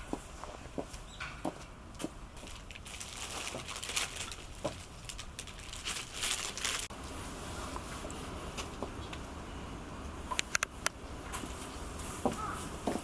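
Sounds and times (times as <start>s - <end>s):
crinkling and rustling: 0.0s - 9.3s
steady low hiss: 0.0s - 13.0s.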